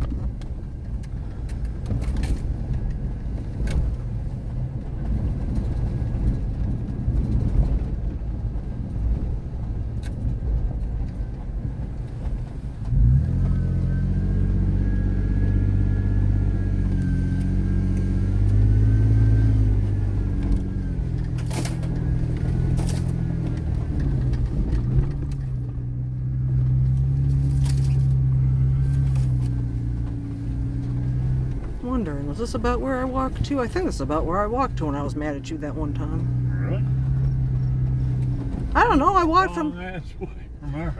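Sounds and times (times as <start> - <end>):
car engine: 0.0 - 40.9.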